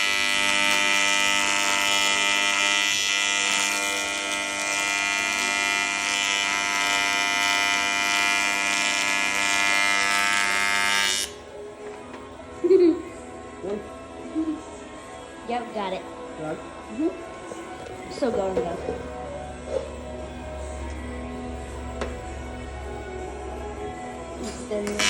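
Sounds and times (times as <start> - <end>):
welding arc buzzing: 0.0 - 11.4, 24.8 - 25.0.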